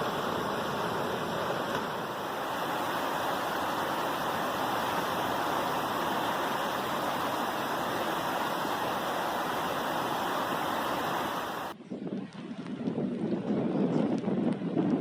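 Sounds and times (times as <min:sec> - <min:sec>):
rushing water: 0:00.0 - 0:11.8.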